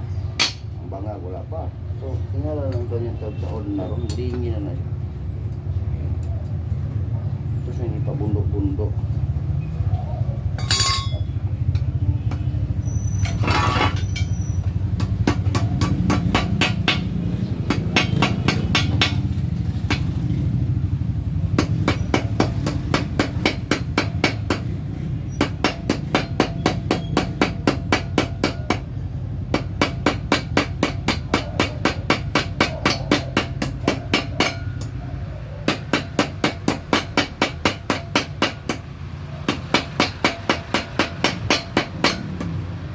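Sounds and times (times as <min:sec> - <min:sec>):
hammer striking sheet metal: 0:15.0 - 0:19.3, 0:29.6 - 0:34.9, 0:35.7 - 0:38.9, 0:39.5 - 0:42.5.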